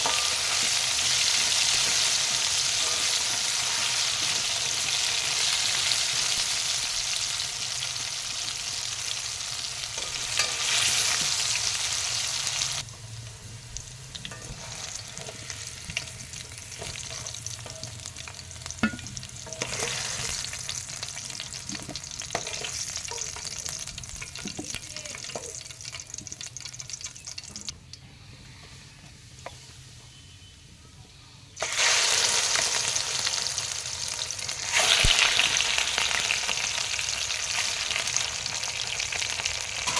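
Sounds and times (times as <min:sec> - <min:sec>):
food sizzling in hot oil: 0:00.0 - 0:27.8, 0:31.6 - 0:39.9
spoon scraping and clicking on pan: 0:21.7 - 0:23.5.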